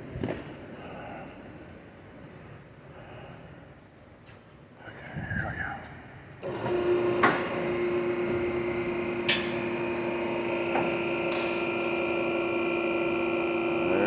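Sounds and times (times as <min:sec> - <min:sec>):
hydraulic pump motor humming: 0:06.4 - 0:14.0.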